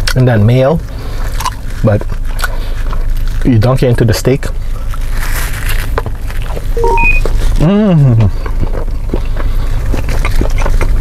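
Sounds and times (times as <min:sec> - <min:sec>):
person chewing: 0:01.2 - 0:03.4
short electronic beep: 0:06.8 - 0:07.3.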